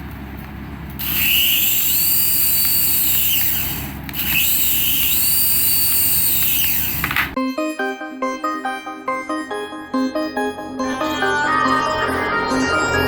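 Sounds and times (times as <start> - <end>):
toy aircraft whining: 1.0 - 7.4.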